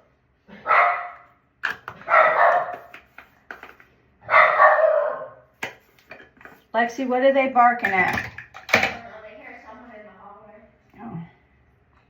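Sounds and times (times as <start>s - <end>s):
dogs barking: 0.5s - 1.4s, 2.0s - 2.9s, 4.2s - 5.5s.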